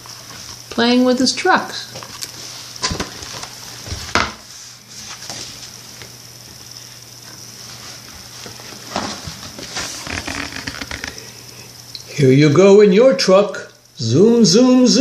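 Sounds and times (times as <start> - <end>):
faint steady hum: 0.0 - 15.0
book pages turning: 8.5 - 11.3.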